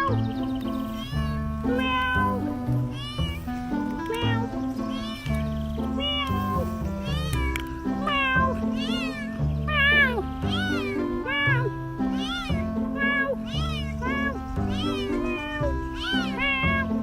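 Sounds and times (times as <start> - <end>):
background music: 0.0 - 17.0
cat meowing: 0.0 - 17.0.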